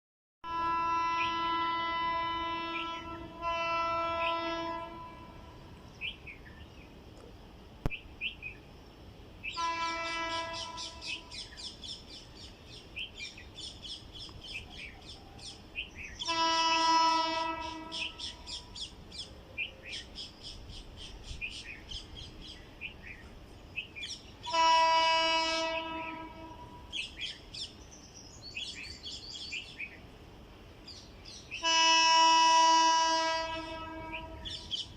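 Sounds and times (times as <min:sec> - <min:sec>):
locomotive horn blasts: 0:00.4 - 0:05.8, 0:09.5 - 0:11.4, 0:16.2 - 0:18.5, 0:24.4 - 0:27.0, 0:31.6 - 0:34.9
birds chirping: 0:04.0 - 0:07.0, 0:07.9 - 0:24.8, 0:33.2 - 0:34.9.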